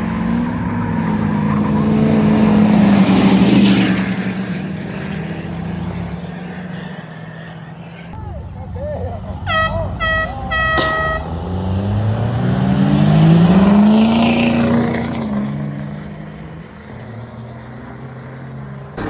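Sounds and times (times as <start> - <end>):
vehicle engine revving past: 0.0 - 6.9, 9.8 - 19.0
vehicle horn: 9.3 - 11.7.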